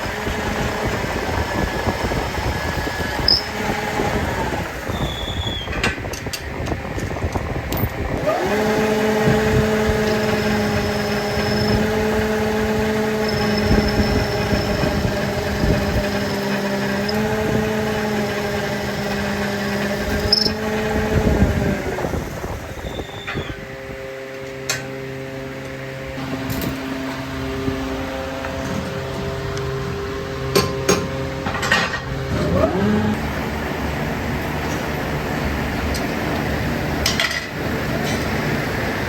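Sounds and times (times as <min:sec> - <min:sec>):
electric motor spinning: 0:00.0 - 0:05.5, 0:07.4 - 0:23.7, 0:32.2 - 0:39.0
machine humming: 0:00.0 - 0:39.0.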